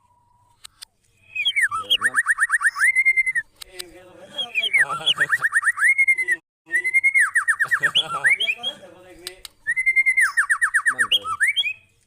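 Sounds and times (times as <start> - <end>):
bird singing whistles: 1.2 - 3.5, 4.4 - 8.6, 9.6 - 11.9.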